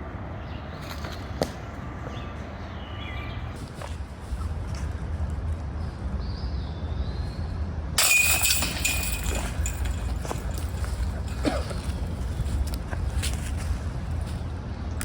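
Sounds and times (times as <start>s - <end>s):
loud ringing clash: 8.0s - 11.3s.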